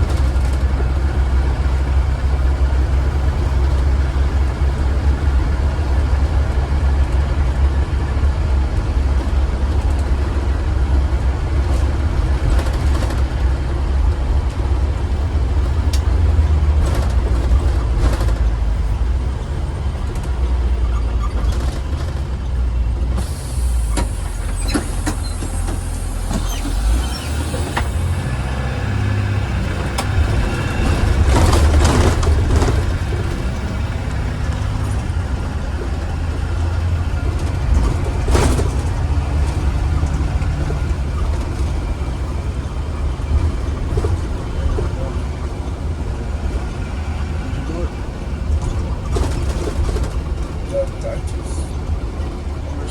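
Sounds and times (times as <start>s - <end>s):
bus engine drone: 0.0s - 52.9s
air brakes hissing: 23.1s - 28.3s, 50.8s - 51.8s.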